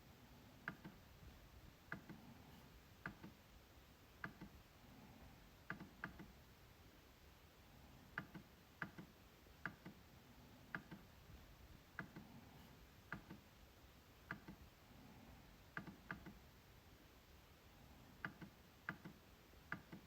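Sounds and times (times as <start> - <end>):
trackpad clicks: 0.6 - 1.0, 3.0 - 3.4, 4.2 - 4.6, 5.7 - 6.3, 8.2 - 10.0, 10.7 - 11.1, 13.1 - 13.4, 14.2 - 14.6, 15.7 - 16.4, 18.2 - 20.0.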